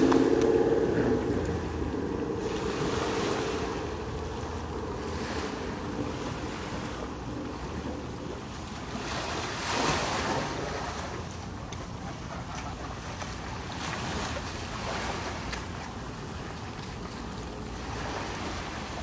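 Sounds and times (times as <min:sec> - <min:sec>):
ocean waves washing in: 0:00.0 - 0:19.0
wind rumbling on microphone: 0:00.0 - 0:19.0.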